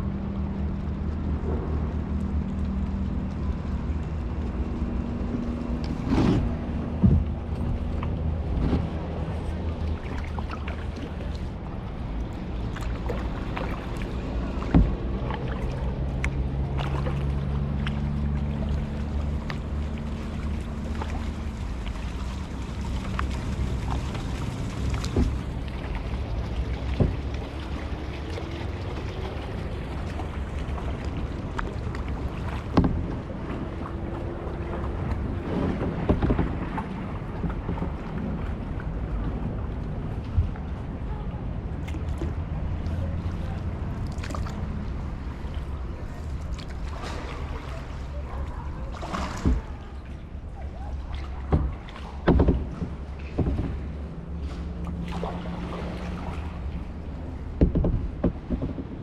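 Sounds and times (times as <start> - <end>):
low hum: 0.0 - 59.0
low rumble: 0.0 - 59.0
water splashing off paddles: 0.4 - 59.0
paddle knocking kayak hull: 5.5 - 41.2, 41.8 - 59.0.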